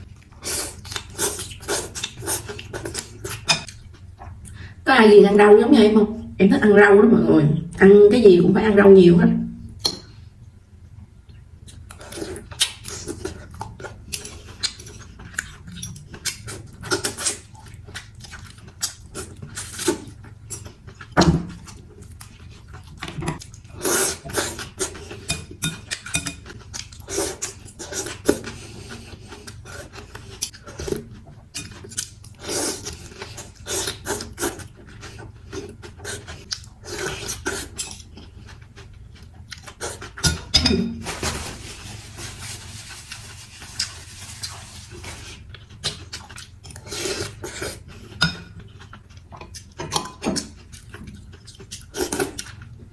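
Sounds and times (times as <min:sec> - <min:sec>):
utensils clinking against a bowl: 0:25.2 - 0:26.5.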